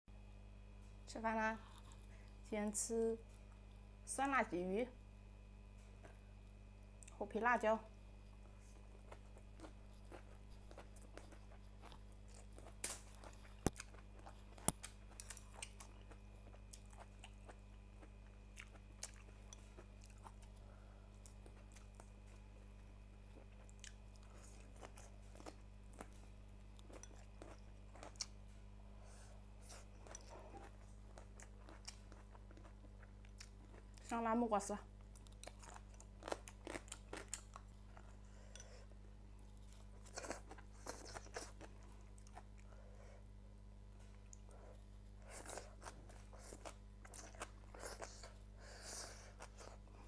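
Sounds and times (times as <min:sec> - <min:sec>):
low electrical hum: 0:00.1 - 0:50.0
person chewing and crunching: 0:01.6 - 0:02.4, 0:08.7 - 0:22.5, 0:23.2 - 0:28.4, 0:29.6 - 0:34.2, 0:35.0 - 0:42.8, 0:44.0 - 0:50.0.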